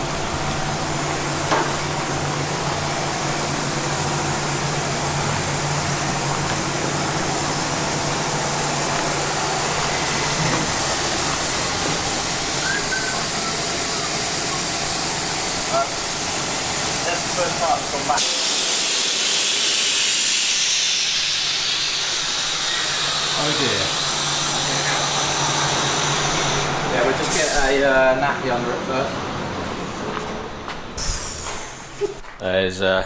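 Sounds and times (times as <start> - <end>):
fan blowing air: 0.0 - 32.9.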